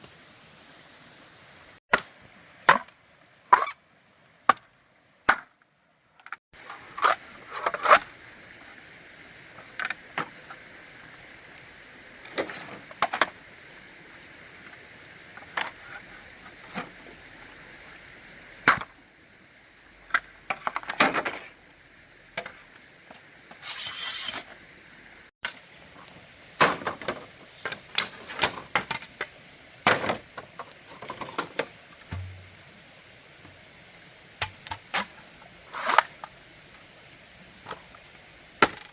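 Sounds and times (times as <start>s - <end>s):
high insect drone: 0.0s - 5.1s, 6.1s - 38.9s
scraping: 23.6s - 24.5s.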